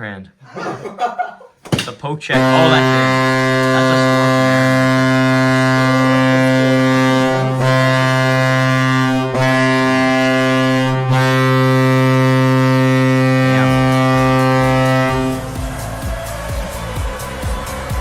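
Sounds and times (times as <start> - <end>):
goal horn: 2.5 - 15.4.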